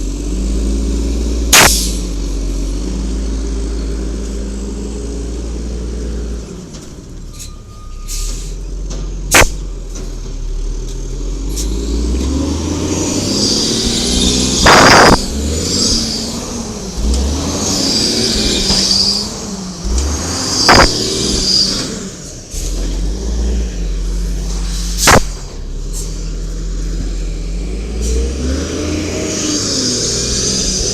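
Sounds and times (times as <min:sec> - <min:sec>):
truck engine revving: 0:00.0 - 0:07.4, 0:08.3 - 0:30.9
loud bursts of noise: 0:01.5 - 0:02.1, 0:09.3 - 0:09.6, 0:12.6 - 0:25.9
sharp bang: 0:09.3 - 0:09.7, 0:13.8 - 0:16.0, 0:20.6 - 0:21.8, 0:24.7 - 0:25.8
high whine: 0:13.1 - 0:22.2.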